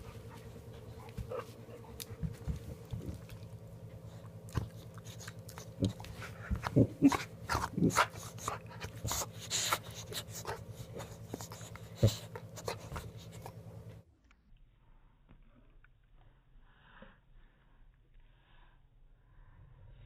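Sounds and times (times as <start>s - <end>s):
steady low hum: 0.0s - 20.0s
dog whimpering and grunting: 5.2s - 13.6s.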